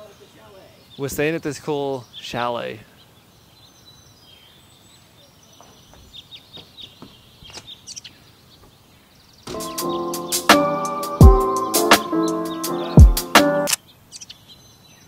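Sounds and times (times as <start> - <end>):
faint outdoor background: 0.0 - 15.0
small bird chirps: 1.8 - 15.0
loud music: 9.5 - 13.8.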